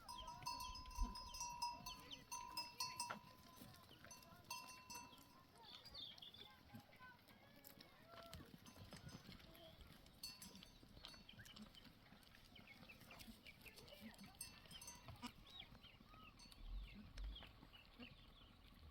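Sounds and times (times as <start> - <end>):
faint high animal peeps: 11.0 - 18.9.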